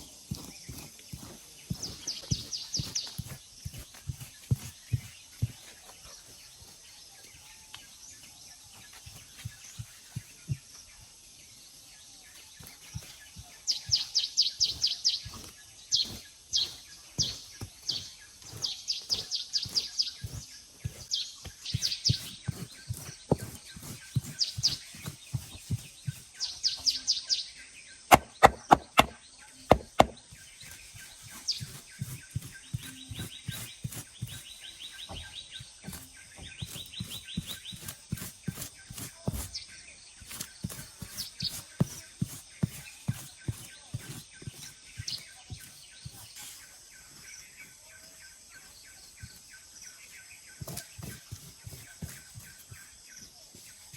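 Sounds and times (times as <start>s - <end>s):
small birds chirping: 0.0s - 53.9s
dull thuds from hand tool: 19.1s - 26.2s, 28.1s - 39.6s
sharp loud knocks: 28.1s - 30.2s.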